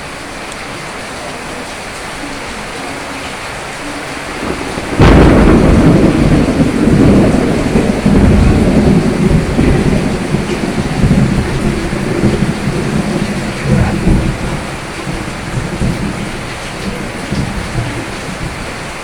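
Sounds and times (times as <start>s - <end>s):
steady rain: 0.0s - 19.0s
thunderclap and rumble: 3.5s - 19.0s.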